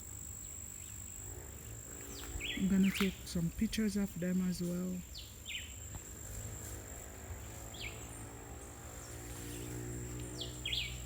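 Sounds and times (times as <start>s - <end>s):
bird chirping: 2.1s - 3.4s, 10.3s - 11.0s.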